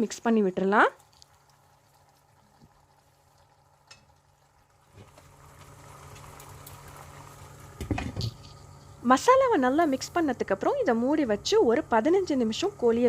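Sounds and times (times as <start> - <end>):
food sizzling in a pot: 0.0 - 10.4.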